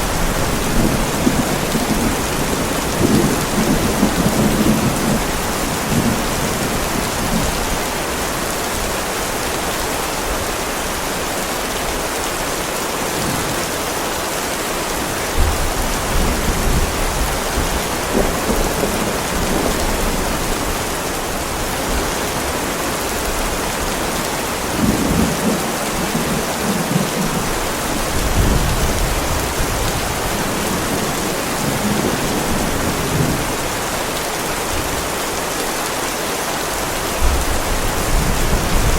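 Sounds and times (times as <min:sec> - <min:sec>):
low thunder rumbles: 0:00.0 - 0:07.7, 0:15.4 - 0:20.8, 0:24.1 - 0:33.9
heavy rain on a driveway: 0:00.0 - 0:38.9.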